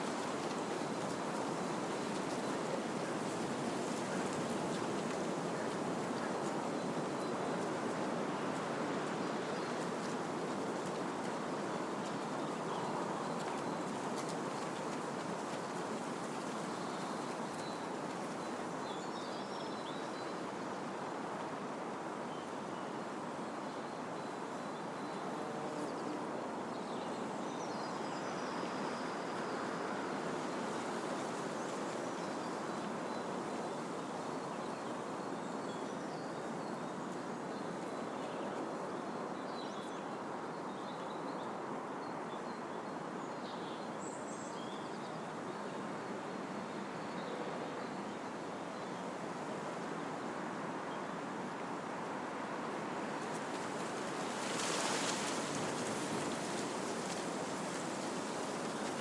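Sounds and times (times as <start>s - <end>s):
wind blowing through trees: 0.0s - 59.0s.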